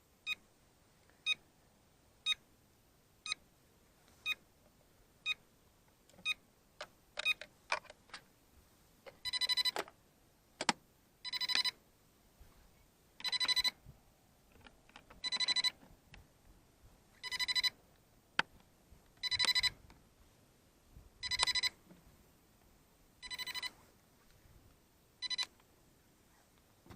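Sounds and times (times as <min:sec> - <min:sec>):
electronic beeps: 0:09.2 - 0:09.8, 0:11.3 - 0:11.8, 0:13.2 - 0:13.8, 0:15.2 - 0:15.8, 0:17.2 - 0:17.8, 0:19.2 - 0:19.8, 0:21.2 - 0:21.8, 0:23.2 - 0:23.8, 0:25.2 - 0:25.5.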